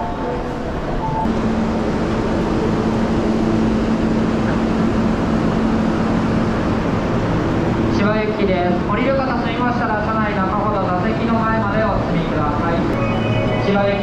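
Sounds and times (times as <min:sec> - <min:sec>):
stopped train humming: 0:00.0 - 0:14.0
ticket gate beeps: 0:13.0 - 0:14.0.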